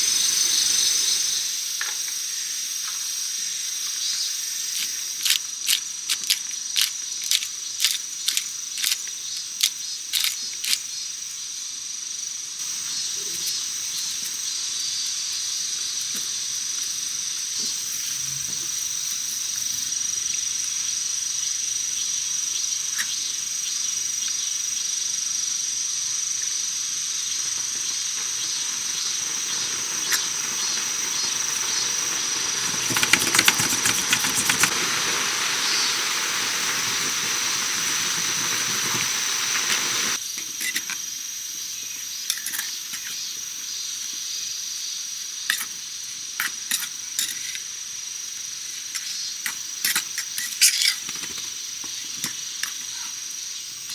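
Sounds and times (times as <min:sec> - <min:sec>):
rain on a tent: 0:27.4 - 0:40.2.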